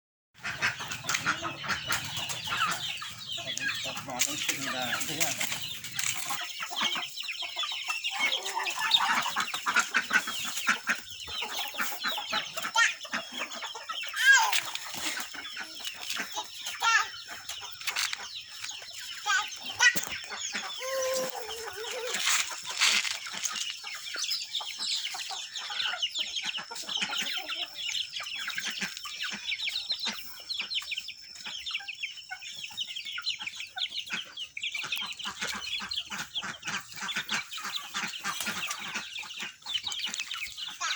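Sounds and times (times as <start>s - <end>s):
chickens clucking: 0.4s - 40.9s.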